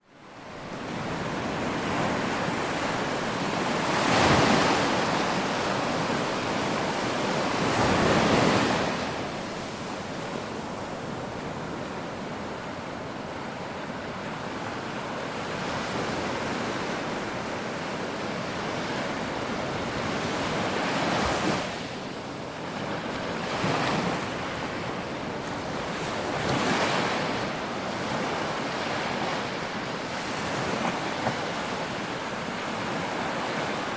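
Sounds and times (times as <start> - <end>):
ocean waves breaking: 0.4 - 22.0, 22.6 - 33.9.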